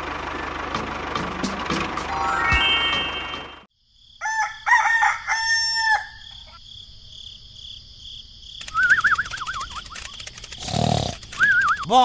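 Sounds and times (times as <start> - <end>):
rooster crowing: 4.2 - 6.6.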